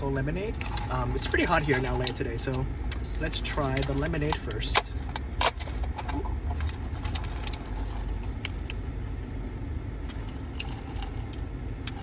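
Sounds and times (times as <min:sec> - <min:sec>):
car engine rumbling: 0:00.0 - 0:12.0
ice clicking in a cup: 0:10.1 - 0:12.0.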